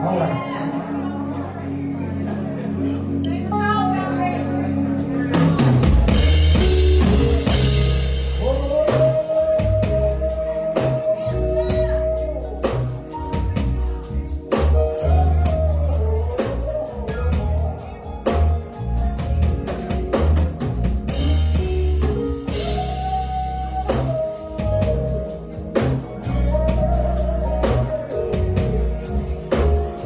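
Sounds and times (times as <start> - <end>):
gospel band playing: 0.0 - 30.0
drum hits: 5.4 - 9.8.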